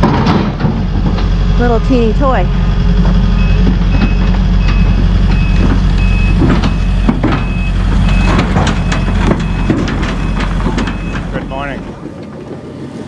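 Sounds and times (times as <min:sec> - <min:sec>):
excavator diesel engine rumble: 0:00.0 - 0:13.0
sharp metallic knocks: 0:03.0 - 0:12.4
backup alarm beeping: 0:03.3 - 0:12.0.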